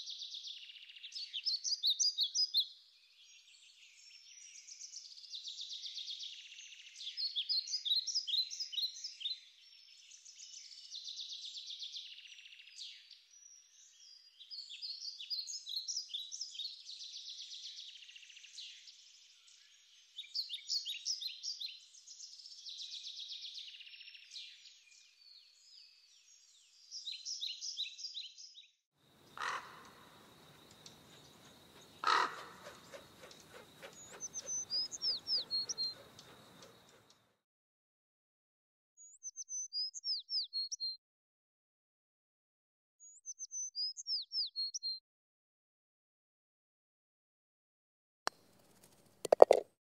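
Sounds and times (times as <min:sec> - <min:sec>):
songbirds singing: 0:00.0 - 0:28.6, 0:29.2 - 0:37.2, 0:39.0 - 0:41.0
hissing outdoor background: 0:29.0 - 0:37.2, 0:48.4 - 0:49.7.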